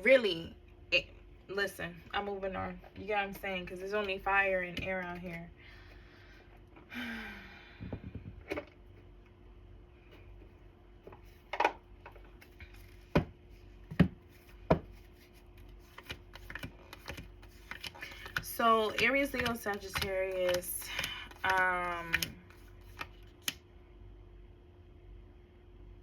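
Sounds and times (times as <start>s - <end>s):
cards rustling: 11.1s - 23.6s.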